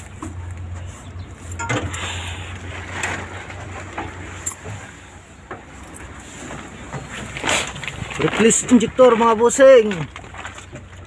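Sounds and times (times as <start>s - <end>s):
metal tools clinking on engine parts: 1.5s - 4.8s, 5.7s - 6.2s.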